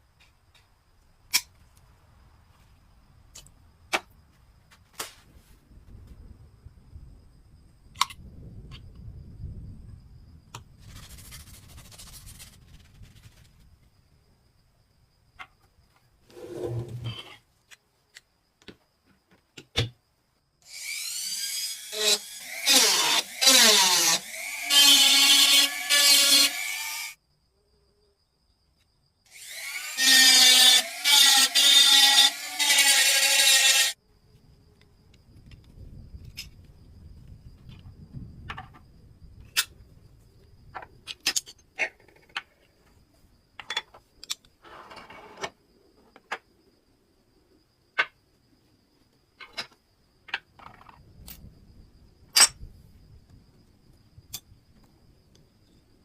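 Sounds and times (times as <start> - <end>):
electric power tool whining: 20.7 - 27.2, 29.3 - 34.0.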